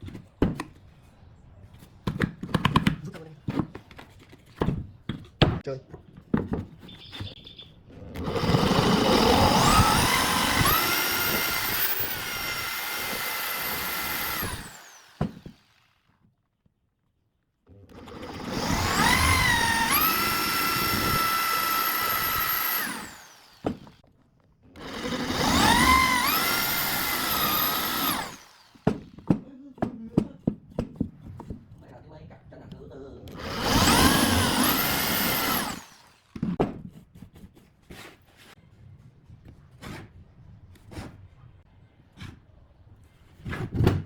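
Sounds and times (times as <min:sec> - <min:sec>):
power tool motor whining: 0:08.1 - 0:16.1, 0:17.9 - 0:24.0, 0:24.7 - 0:29.1, 0:33.3 - 0:36.4.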